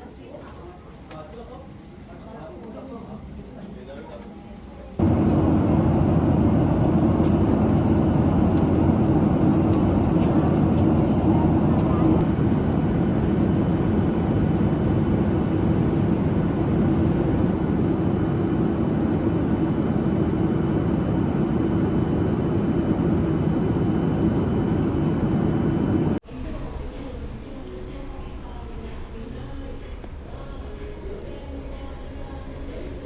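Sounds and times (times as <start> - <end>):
rushing road noise: 5.0 - 26.2
vehicle engine hum: 5.0 - 26.2.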